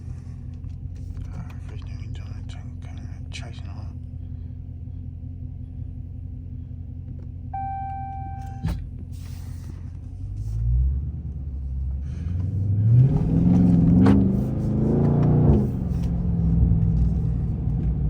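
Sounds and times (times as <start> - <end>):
car engine idling and revving: 0.0 - 18.0
dashboard chime: 7.6 - 8.6.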